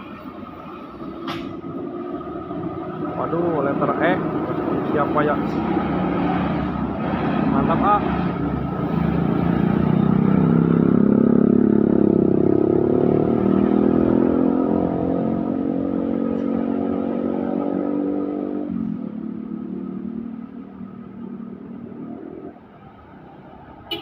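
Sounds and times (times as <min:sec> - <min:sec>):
diesel truck engine passing: 0:00.0 - 0:23.9.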